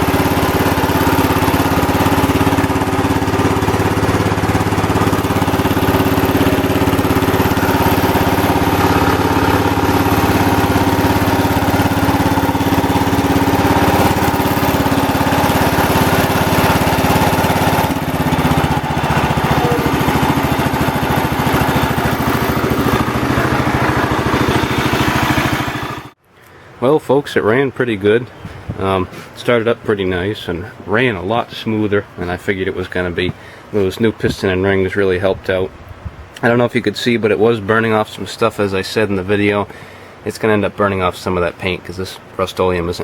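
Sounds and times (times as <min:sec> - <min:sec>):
garden tractor engine running: 0:00.0 - 0:26.2.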